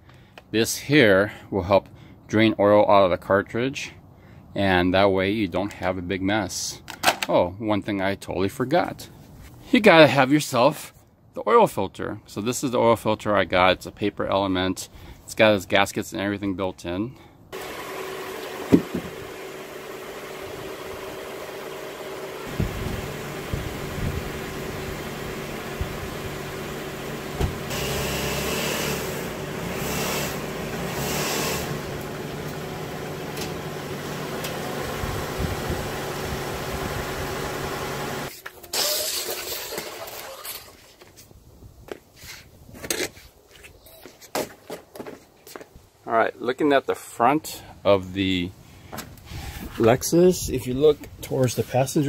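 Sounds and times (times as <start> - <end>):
car engine idling: 17.6 - 38.3
rustling and scraping: 40.4 - 45.8.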